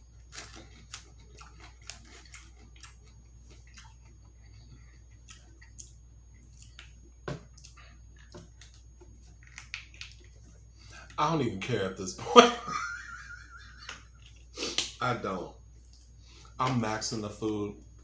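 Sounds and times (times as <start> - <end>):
close chewing and mouth smacks: 0.0 - 11.2, 13.9 - 15.0, 15.7 - 16.6.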